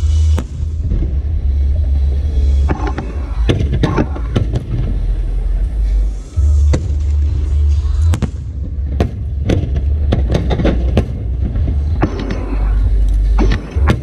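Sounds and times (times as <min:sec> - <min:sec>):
fireworks booming rumble: 0:00.0 - 0:14.0
fireworks crackling bangs: 0:08.0 - 0:12.7.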